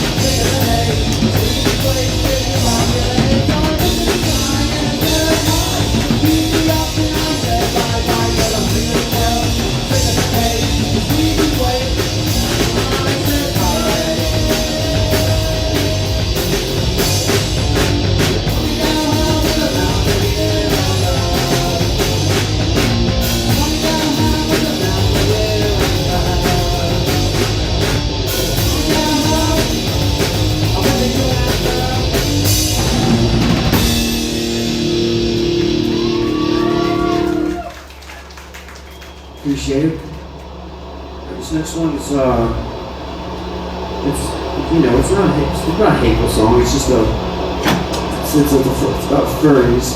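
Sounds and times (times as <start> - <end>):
person singing: 0.0 - 16.6, 18.5 - 22.4, 23.4 - 27.6, 28.5 - 33.2
distorted guitar and bass: 0.0 - 37.8, 39.3 - 49.9
punk rock band playing: 0.0 - 39.3
pounding drum kit: 0.0 - 49.9.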